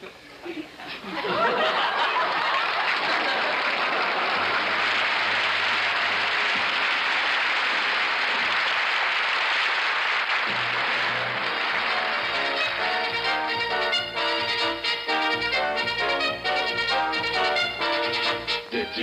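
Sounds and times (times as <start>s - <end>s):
audience applauding: 1.4s - 18.5s
orchestra playing: 4.3s - 8.2s, 10.5s - 19.0s
low band notes: 10.4s - 18.8s.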